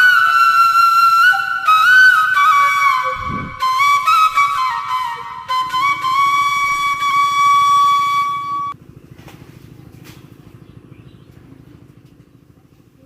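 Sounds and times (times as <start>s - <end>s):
flute holding high note: 0.0s - 8.8s.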